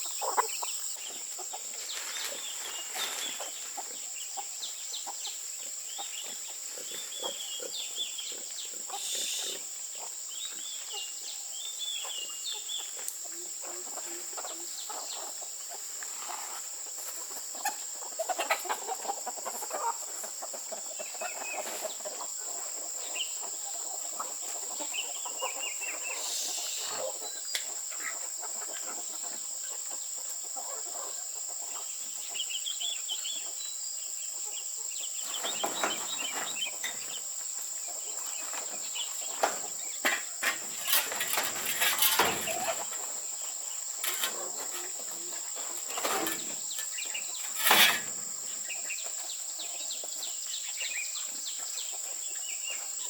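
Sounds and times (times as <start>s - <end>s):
chickens clucking: 0.0s - 53.0s.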